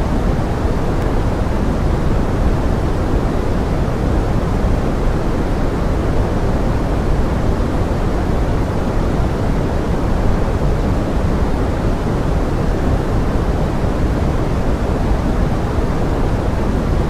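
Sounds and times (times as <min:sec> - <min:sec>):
pink noise hiss: 0:00.0 - 0:17.0.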